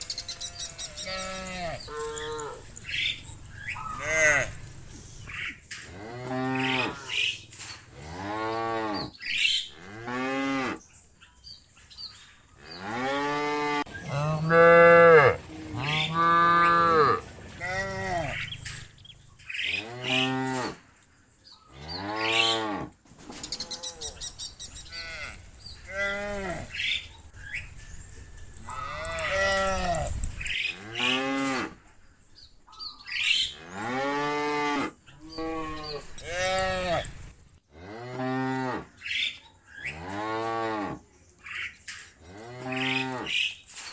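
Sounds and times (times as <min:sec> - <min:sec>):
cows mooing: 0:00.1 - 0:10.8, 0:12.6 - 0:20.8, 0:24.8 - 0:27.1, 0:28.5 - 0:31.8, 0:33.4 - 0:39.0, 0:42.2 - 0:43.4.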